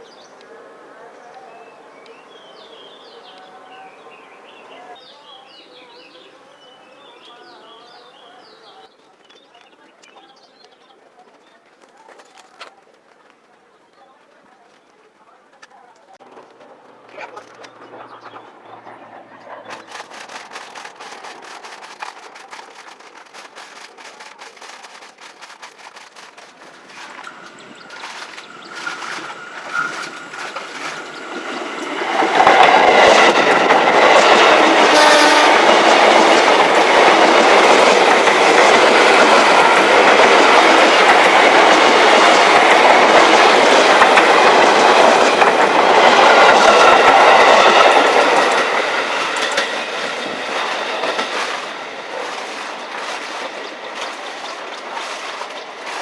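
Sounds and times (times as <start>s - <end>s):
train wheels clattering past: 16.2s - 56.0s.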